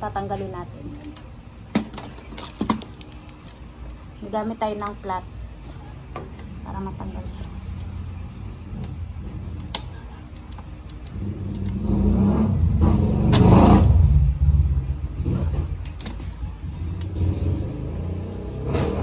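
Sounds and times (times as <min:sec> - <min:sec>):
vehicle passing by rumble: 0:11.2 - 0:15.8.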